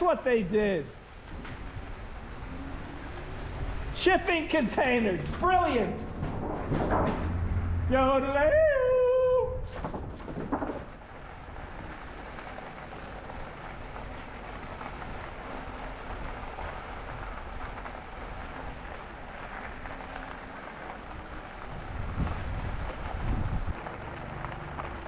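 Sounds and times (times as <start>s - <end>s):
bike tyres rolling on trail: 0.0s - 25.0s
wind on microphone: 21.6s - 23.9s.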